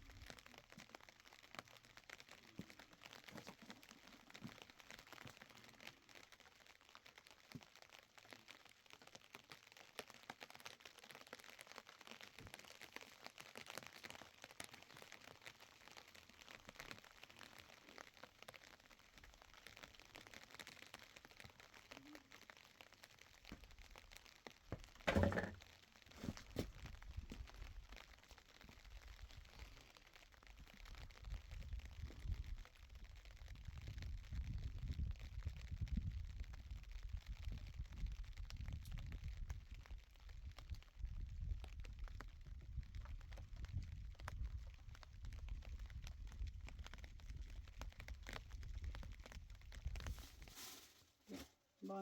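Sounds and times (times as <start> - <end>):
wood fire crackling: 0.0 - 52.0.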